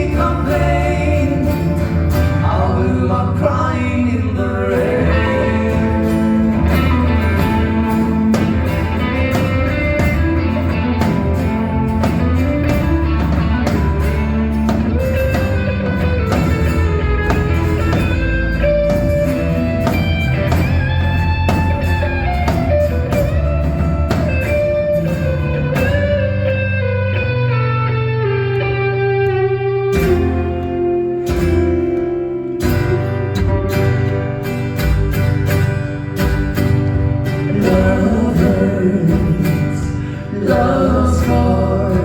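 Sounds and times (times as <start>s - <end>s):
bass: 0.0s - 42.0s
guitar melody: 0.0s - 42.0s
steady drum beat: 5.1s - 26.3s, 32.7s - 42.0s.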